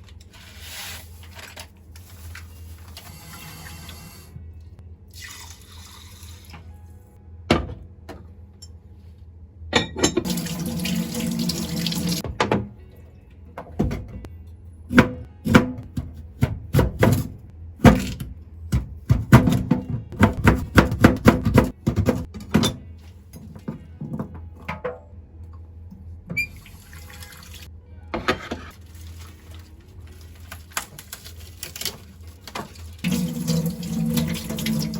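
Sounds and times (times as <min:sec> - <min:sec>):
kitchen tap running: 0:10.2 - 0:12.2, 0:32.5 - 0:34.9
background music: 0:10.2 - 0:32.2, 0:33.0 - 0:34.9.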